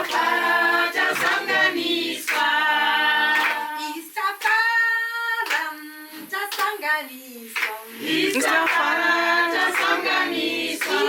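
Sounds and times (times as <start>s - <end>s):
sharp hand claps: 0.0s - 0.3s, 1.1s - 1.6s, 2.2s - 2.5s, 3.3s - 4.6s, 5.4s - 5.8s, 6.5s - 6.8s, 7.6s - 8.9s, 9.6s - 10.0s, 10.8s - 11.0s
group singing long held notes: 0.0s - 11.0s.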